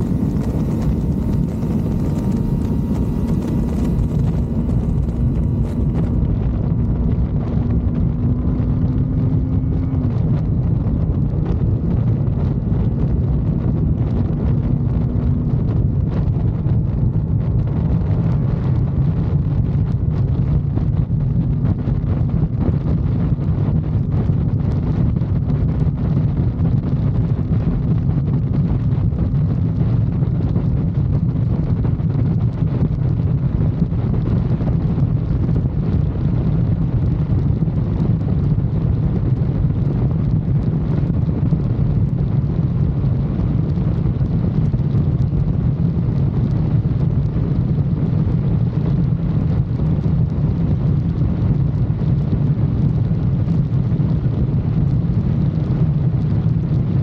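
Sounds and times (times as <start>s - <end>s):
motorcycle engine cruising: 0.0s - 20.1s
wind rushing over microphone: 0.0s - 57.0s.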